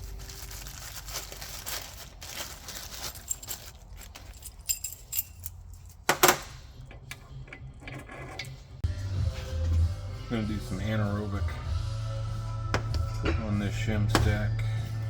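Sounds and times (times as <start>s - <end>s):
metal parts clattering: 0.1s - 6.6s
small metal parts clinking: 0.2s - 6.4s.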